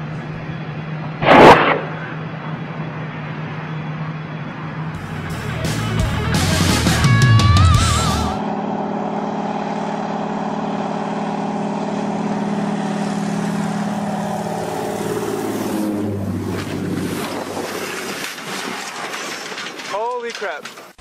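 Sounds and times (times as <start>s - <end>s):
engine droning: 0.0s - 21.0s
music: 5.0s - 8.4s.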